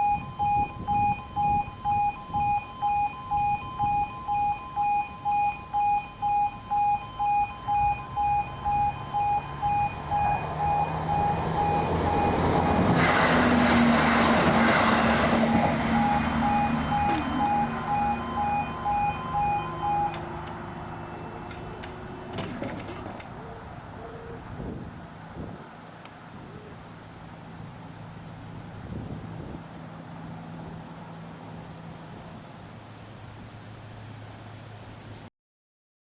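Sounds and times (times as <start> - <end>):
level crossing alarm beeping: 0.0 - 13.5, 14.4 - 22.5
diesel train passing: 5.7 - 26.0.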